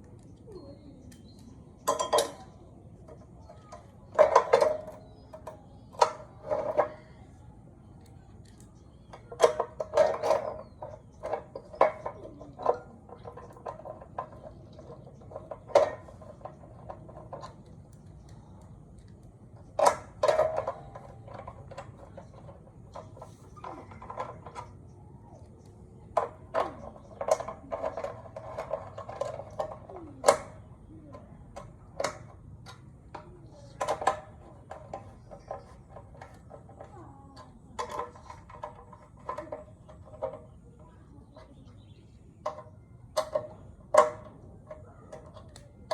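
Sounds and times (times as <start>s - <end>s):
metal tools clinking and clanking: 1.1s - 2.6s.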